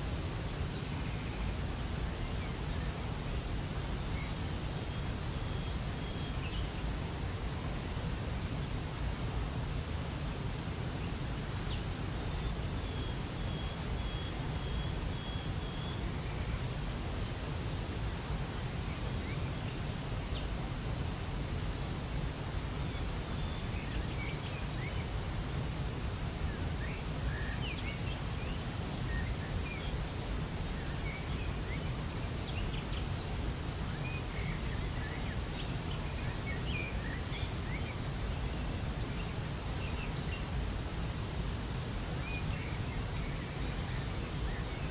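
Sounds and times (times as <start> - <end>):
small birds chirping: 10.4 - 44.9.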